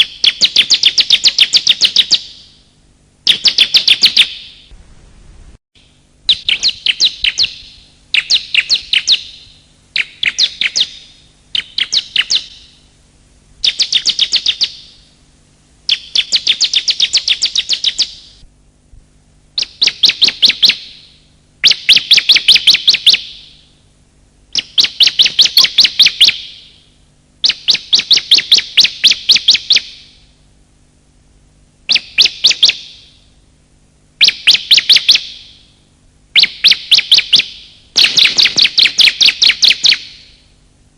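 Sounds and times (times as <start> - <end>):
prinia high chipping calls: 6.3 - 12.8, 13.6 - 15.1, 15.9 - 18.4, 19.6 - 23.6, 24.5 - 26.8, 27.4 - 30.2, 31.9 - 33.2, 34.2 - 35.6, 36.4 - 40.4.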